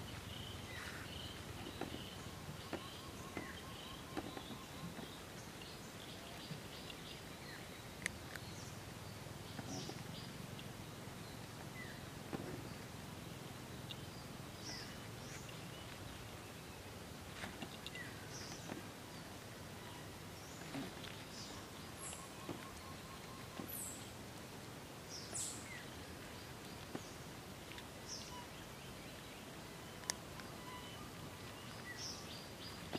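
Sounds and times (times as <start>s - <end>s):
bird chirps: 0.0s - 7.8s, 19.8s - 24.1s, 29.8s - 32.9s
outdoor background noise: 0.0s - 32.9s
kitten crunching dry kibble: 6.7s - 9.0s.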